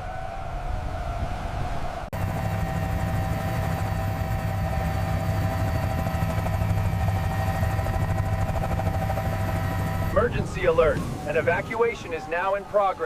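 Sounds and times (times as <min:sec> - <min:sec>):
engine drone with high whine: 0:02.2 - 0:12.3
siren-like tone: 0:02.2 - 0:13.0.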